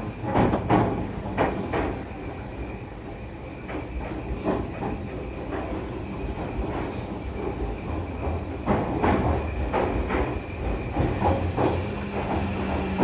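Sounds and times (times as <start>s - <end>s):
train wheels rumbling on track: 0.0s - 13.0s
wheels knocking on rail joints: 0.2s - 2.1s.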